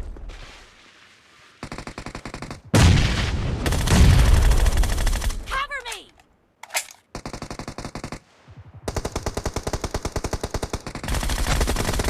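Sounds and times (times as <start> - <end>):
video game automatic gunfire: 8.9 - 12.0.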